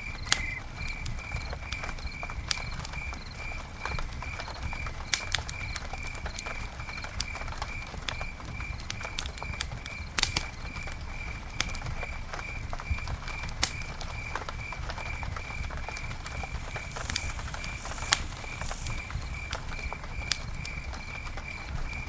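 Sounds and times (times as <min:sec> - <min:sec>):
campfire crackling and popping: 0:00.0 - 0:22.0
high repeating chirp: 0:00.3 - 0:00.6.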